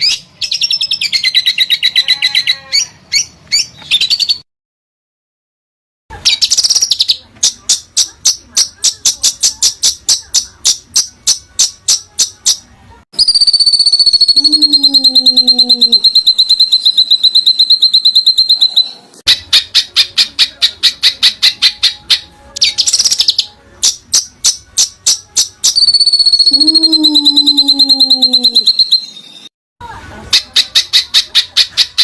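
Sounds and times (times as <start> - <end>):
bird fast trill: 13.2 - 29.5.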